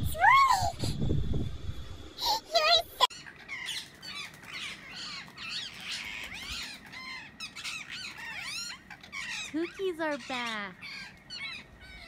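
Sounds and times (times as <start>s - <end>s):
flock of birds chirping: 3.0s - 12.0s.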